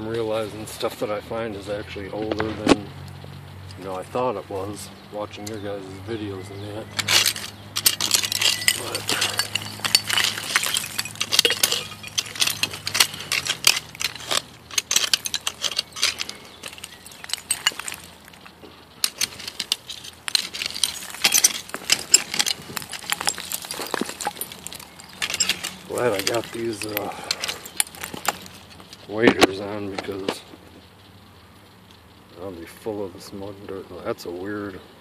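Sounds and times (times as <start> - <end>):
broken glass clinking: 6.9 - 29.1.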